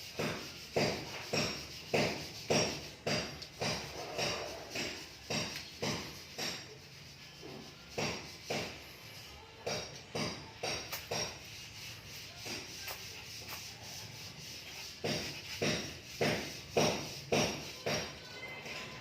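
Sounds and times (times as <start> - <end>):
kitten scraping litter: 10.8 - 17.8.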